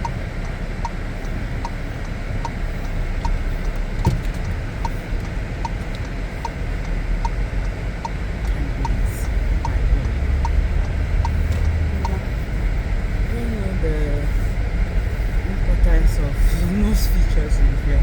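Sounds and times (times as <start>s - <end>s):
car indicator clicking: 0.0s - 13.0s
engine and road rumble: 0.0s - 18.0s.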